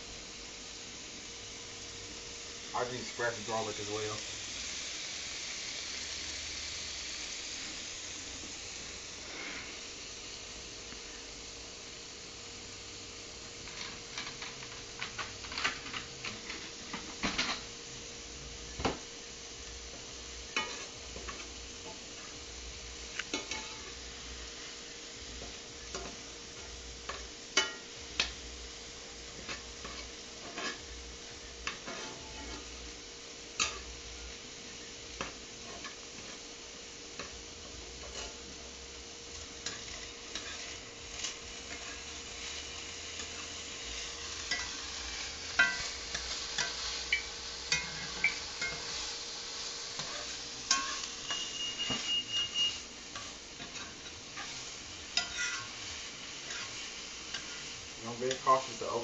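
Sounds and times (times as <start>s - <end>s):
faint sizzle: 0.0s - 59.0s
utensil scraping frying pan: 8.5s - 9.9s, 13.6s - 17.7s, 20.0s - 34.2s, 34.8s - 59.0s.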